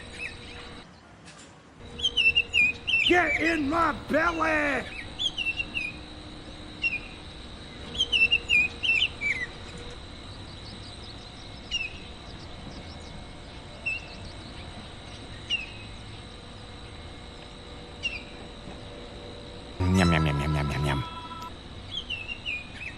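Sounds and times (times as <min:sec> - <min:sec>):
loud voice-like sound: 0:03.1 - 0:04.9, 0:19.8 - 0:21.5.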